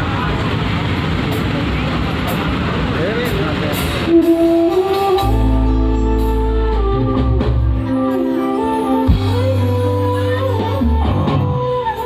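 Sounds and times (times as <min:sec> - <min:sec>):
loud music with booming bass: 0:05.2 - 0:12.0.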